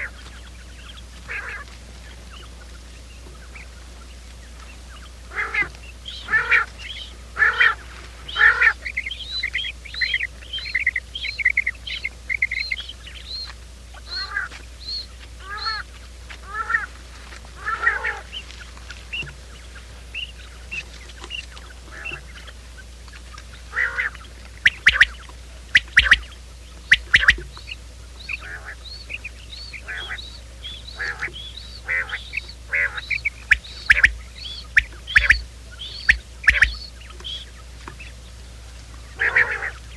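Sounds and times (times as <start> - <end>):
quail chirping calls: 0.0 - 39.9.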